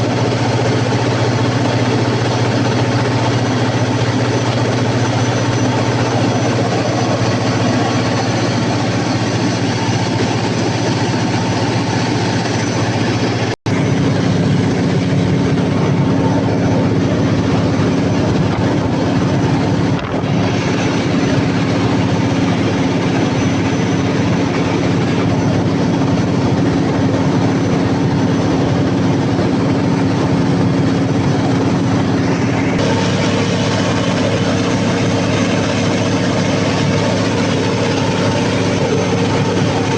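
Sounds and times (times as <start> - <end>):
diesel generator running: 0.0 - 39.9.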